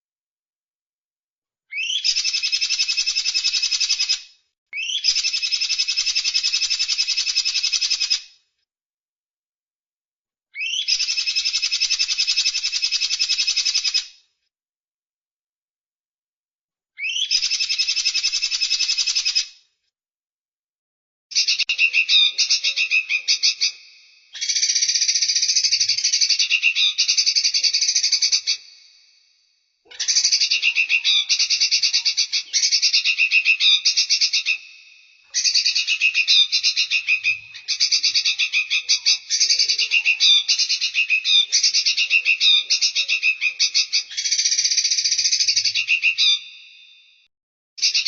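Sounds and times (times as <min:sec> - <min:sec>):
songbird chattering trills: 0:30.0 - 0:34.7, 0:35.4 - 0:46.4.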